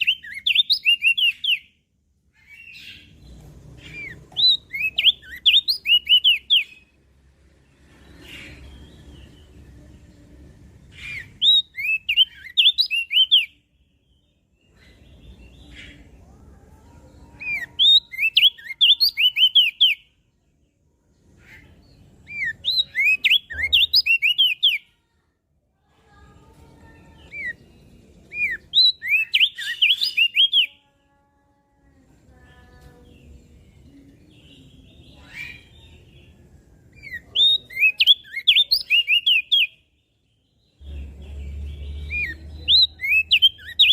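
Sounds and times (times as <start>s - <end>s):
bird singing high sliding chirps: 0.0s - 1.8s, 2.4s - 9.8s, 10.7s - 16.2s, 17.1s - 20.1s, 21.4s - 24.8s, 26.1s - 30.7s, 40.4s - 43.9s.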